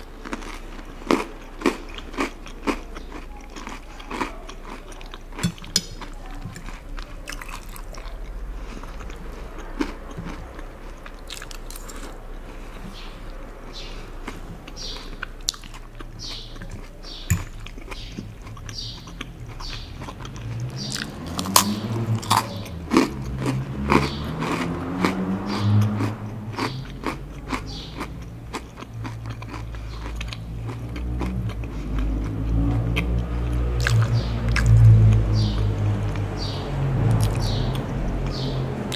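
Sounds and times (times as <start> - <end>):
chewing crunchy salad greens: 0.0 - 38.9.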